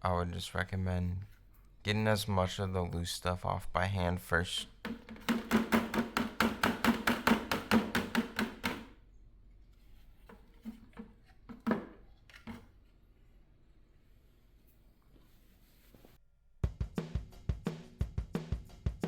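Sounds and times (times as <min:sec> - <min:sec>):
hollow plastic knocks: 0:04.7 - 0:09.0.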